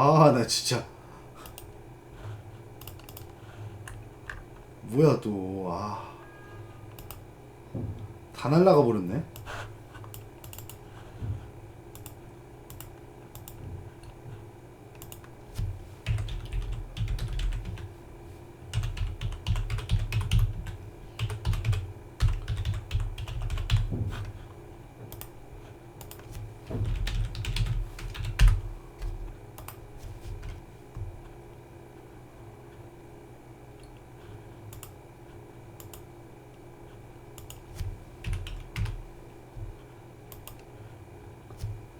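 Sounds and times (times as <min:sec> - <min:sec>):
typing on computer keyboard: 0:02.8 - 0:03.3, 0:10.1 - 0:10.8, 0:16.0 - 0:17.9, 0:18.7 - 0:23.9, 0:26.0 - 0:28.6, 0:38.2 - 0:39.0.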